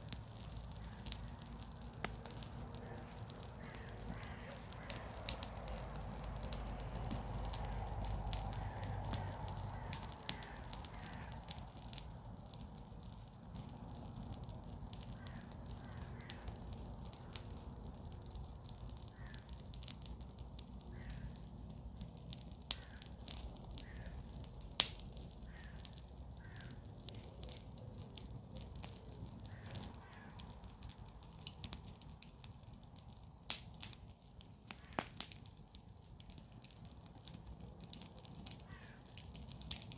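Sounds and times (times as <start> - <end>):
bonfire crackling: 0.0 - 39.9
crow cawing: 2.3 - 6.0, 8.4 - 11.4, 15.1 - 16.6, 19.1 - 19.5, 20.9 - 21.4, 22.8 - 23.2, 23.8 - 24.3, 25.5 - 26.8, 29.4 - 30.4, 38.6 - 39.1.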